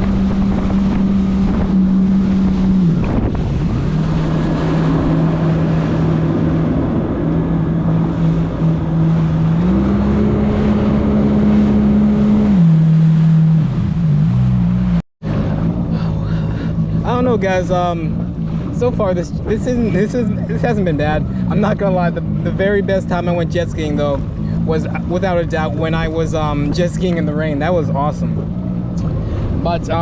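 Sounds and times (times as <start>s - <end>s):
wind buffeting microphone: 0.0s - 12.7s
jet ski engine running: 0.0s - 30.0s.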